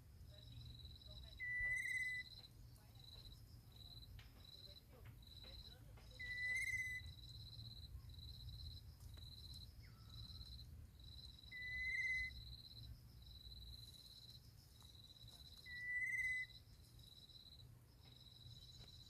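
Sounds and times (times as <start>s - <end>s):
insects trilling: 0.0s - 19.0s
whistled calls: 1.4s - 2.4s, 5.5s - 7.2s, 11.5s - 12.4s, 15.5s - 16.7s.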